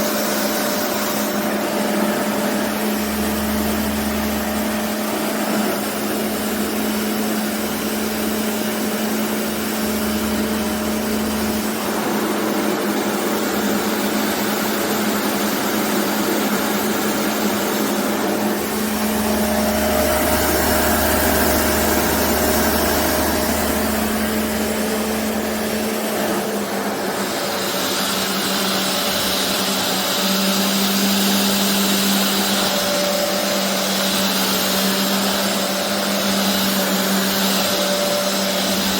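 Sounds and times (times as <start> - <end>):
carpet cleaner suction motor: 0.0 - 38.9.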